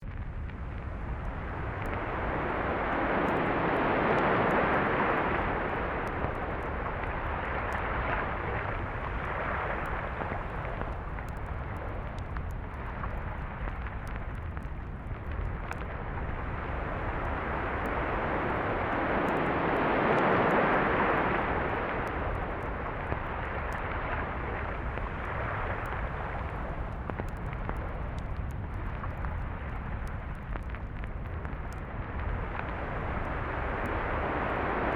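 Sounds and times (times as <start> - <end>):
low rumble of surf: 0.0 - 34.9
sea waves breaking on beach: 2.0 - 10.2, 16.6 - 26.2.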